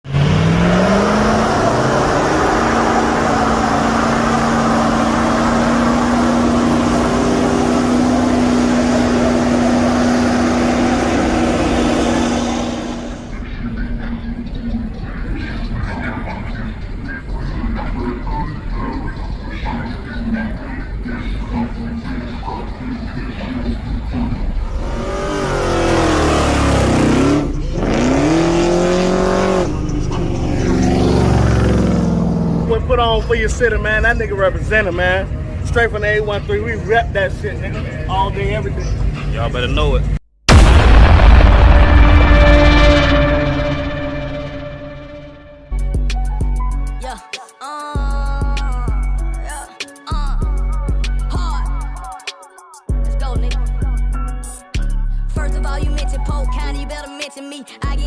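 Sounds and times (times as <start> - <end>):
vehicle engine revving: 0.0 - 13.4, 24.2 - 33.0
loud rushing noise: 1.0 - 13.4, 40.5 - 45.8.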